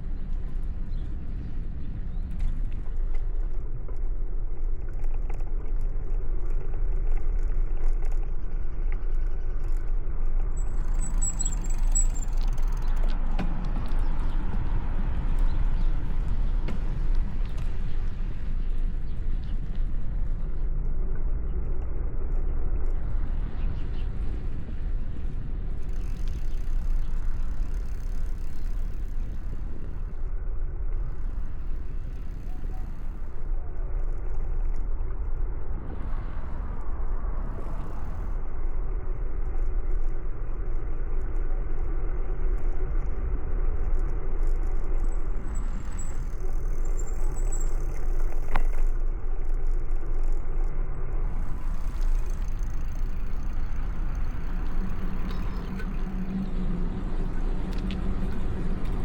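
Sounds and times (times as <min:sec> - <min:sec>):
low rumble of bicycle: 0:00.0 - 0:59.0
road traffic: 0:10.6 - 0:21.0, 0:22.6 - 0:34.0, 0:50.8 - 0:59.0.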